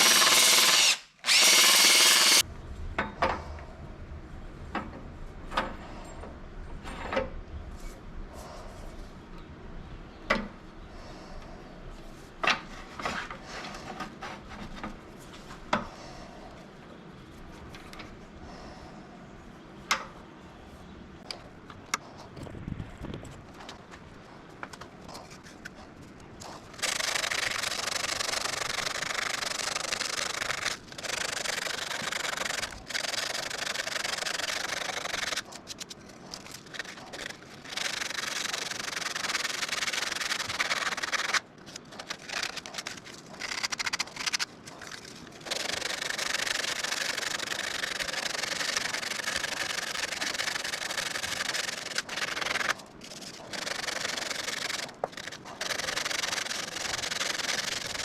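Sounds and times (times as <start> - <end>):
sanding disc grinding wood: 0.0 - 2.4.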